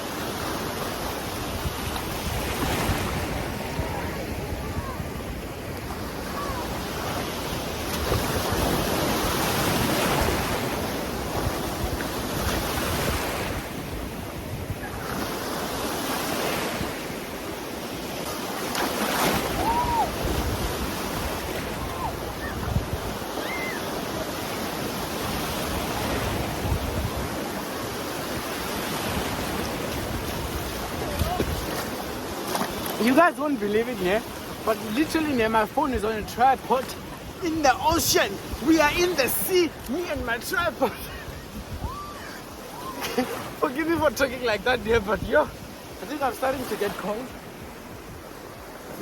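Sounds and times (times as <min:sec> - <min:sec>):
sea waves breaking: 0:00.0 - 0:49.0
wind buffeting microphone: 0:01.4 - 0:15.1, 0:19.4 - 0:23.8, 0:25.2 - 0:27.6, 0:28.3 - 0:32.2, 0:36.9 - 0:42.9.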